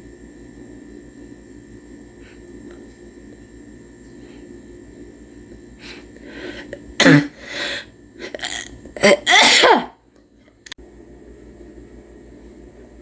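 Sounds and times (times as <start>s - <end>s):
person coughing: 7.0s - 7.6s, 8.2s - 10.0s.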